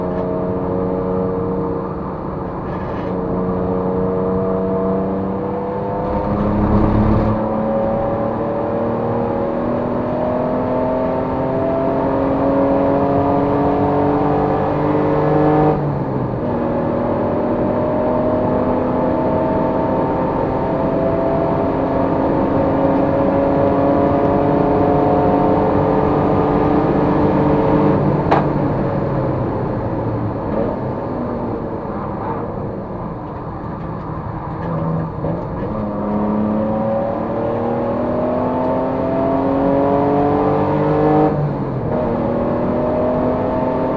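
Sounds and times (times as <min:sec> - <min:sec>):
race car engine revving: 0:02.7 - 0:15.8, 0:34.6 - 0:43.9.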